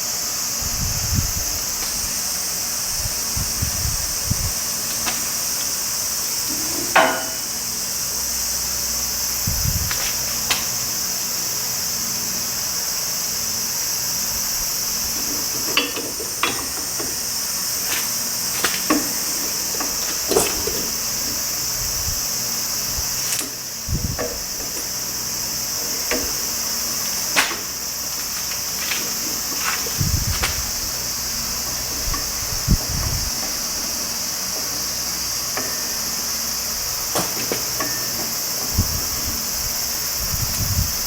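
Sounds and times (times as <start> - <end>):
high-pitched insect drone: 0.0 - 41.0
hand tools clinking: 15.1 - 21.6, 25.7 - 32.6.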